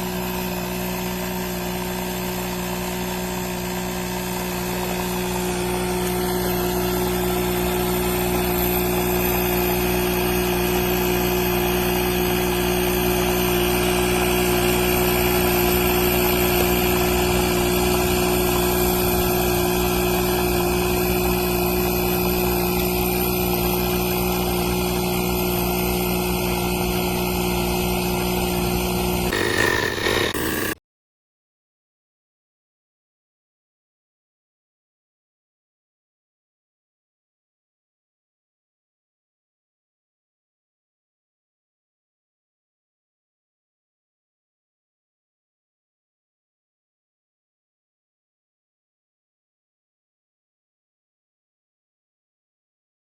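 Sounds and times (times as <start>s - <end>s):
tire inflator compressor humming: 0.0s - 30.8s.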